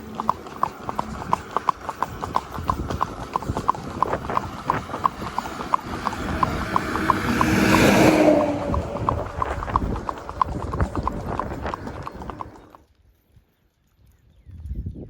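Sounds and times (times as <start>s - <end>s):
horse hooves clip-clopping: 0.0s - 14.2s
broad rush of noise: 4.0s - 12.6s.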